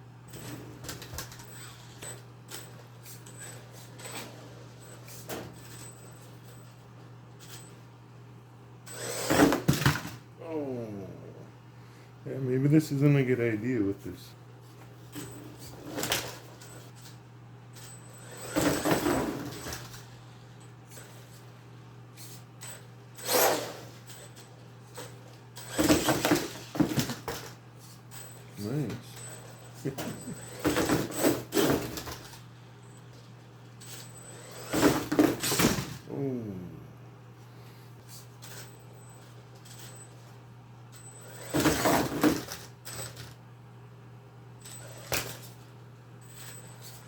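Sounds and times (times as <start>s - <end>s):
steady low hum: 0.0s - 47.0s
electric toy motor whirring: 1.3s - 2.2s.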